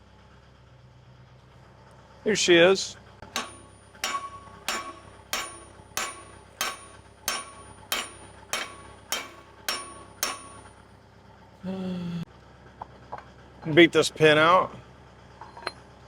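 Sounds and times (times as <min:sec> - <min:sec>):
hammer blows on steel pin: 0:03.3 - 0:10.8.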